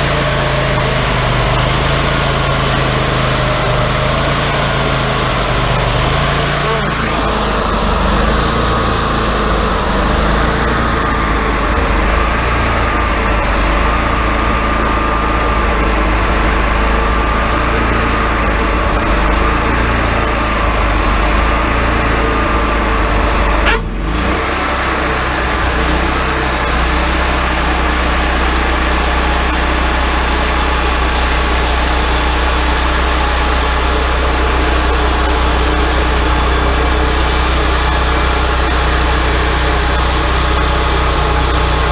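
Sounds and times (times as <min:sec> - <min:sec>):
band saw whine: 0:00.0 - 0:41.9
sawmill engine hum: 0:00.0 - 0:41.9.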